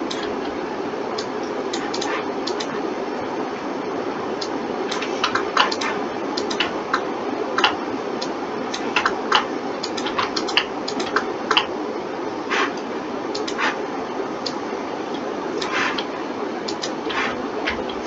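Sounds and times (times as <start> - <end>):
background hiss: 0.0 - 18.0
mouse and keyboard clicks: 1.2 - 2.7, 4.9 - 6.7, 8.8 - 11.7, 13.4 - 13.8.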